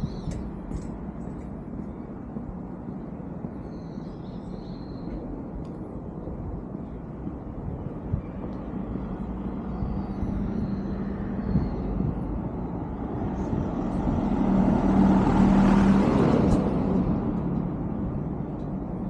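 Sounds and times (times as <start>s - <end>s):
vehicle passing close by: 13.0s - 18.4s.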